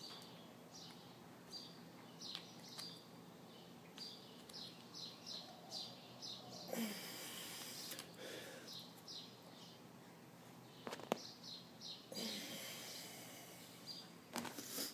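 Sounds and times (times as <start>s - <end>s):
bird chirping: 0.0s - 6.8s, 8.5s - 9.9s, 10.6s - 14.2s
breathy hiss: 12.1s - 13.8s.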